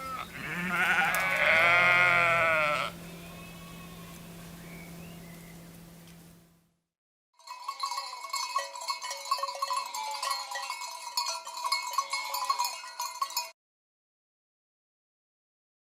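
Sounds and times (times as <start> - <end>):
sheep bells clanking: 0.0 - 2.8, 7.4 - 13.6
faint sheep bleats: 0.0 - 4.1.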